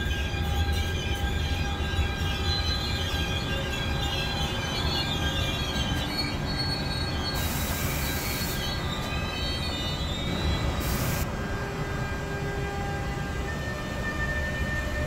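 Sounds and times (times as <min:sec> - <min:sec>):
train wheels squealing: 0:00.0 - 0:11.3
hiss bursts: 0:07.3 - 0:08.9, 0:10.7 - 0:11.3.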